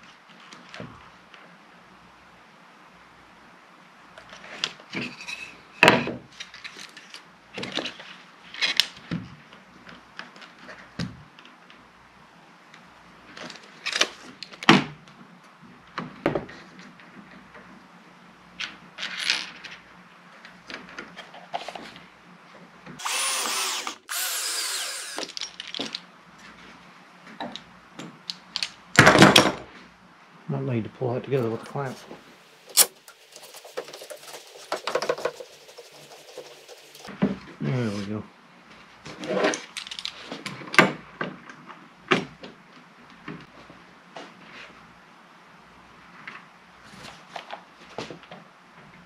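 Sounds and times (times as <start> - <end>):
power drill driving screws into wood: 23.0 - 25.4, 32.7 - 33.0.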